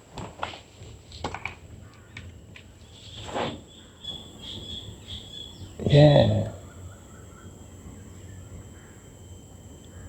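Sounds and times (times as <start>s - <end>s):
high insect drone: 3.6s - 10.0s.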